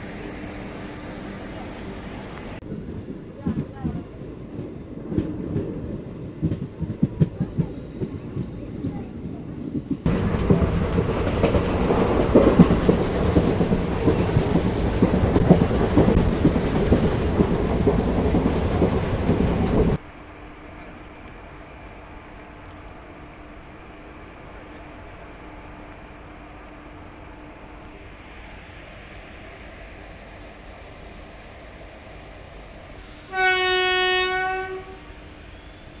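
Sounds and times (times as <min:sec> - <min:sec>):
train running rush: 0:00.0 - 0:36.0
train wheels clicking over rail joints: 0:09.7 - 0:20.0.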